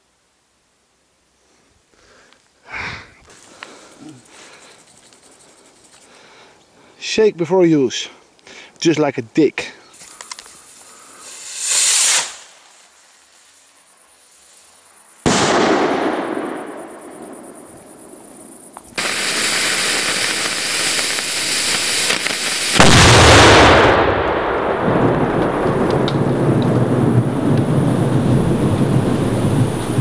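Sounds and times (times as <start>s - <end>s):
firework hiss: 9.9s - 30.0s
loud rushing hiss: 10.0s - 18.0s, 18.9s - 24.0s
firework burst: 10.6s - 18.0s, 18.9s - 30.0s.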